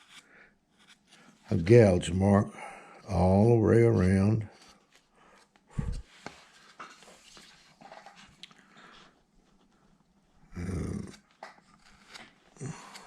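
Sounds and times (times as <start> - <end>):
short low growl: 10.5 - 11.2.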